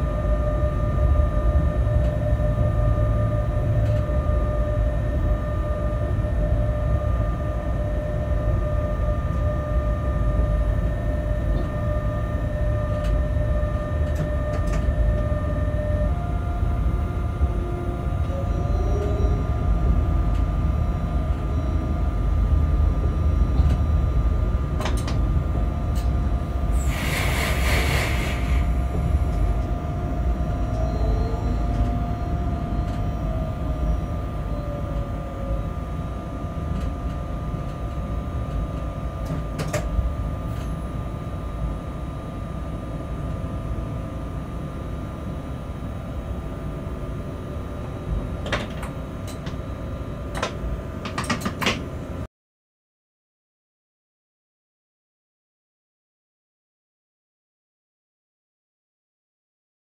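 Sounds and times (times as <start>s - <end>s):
constant whine: 0.0s - 52.2s
train low rumble: 0.0s - 52.3s
short hiss: 26.8s - 28.7s.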